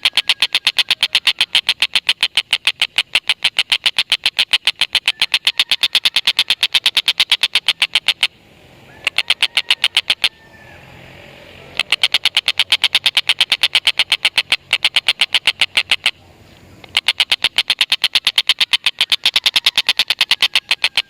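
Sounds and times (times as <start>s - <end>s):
kingfisher chattering call: 0.0s - 10.4s, 11.6s - 16.2s, 16.8s - 21.0s.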